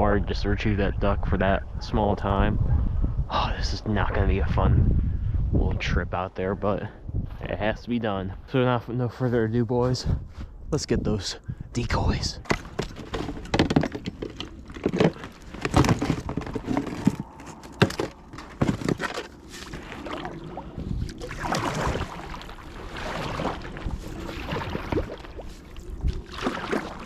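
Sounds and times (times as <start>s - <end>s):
paddle splashing water: 12.8s - 27.0s.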